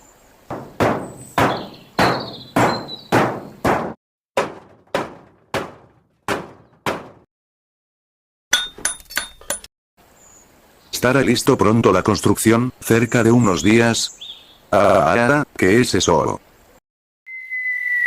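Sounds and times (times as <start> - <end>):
hammer blows ringing: 0.5 - 7.3.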